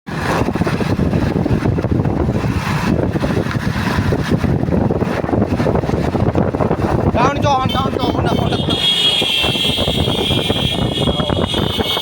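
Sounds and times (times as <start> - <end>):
motorcycle engine running: 0.1 - 12.0
wind on microphone: 0.1 - 12.0.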